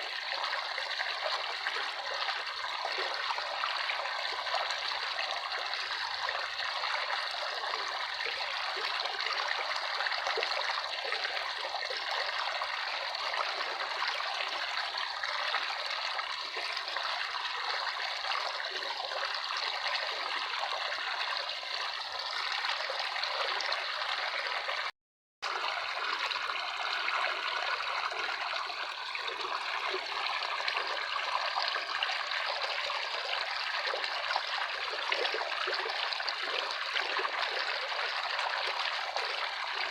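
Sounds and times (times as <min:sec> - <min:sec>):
stream trickling and splashing: 0:00.0 - 0:39.9.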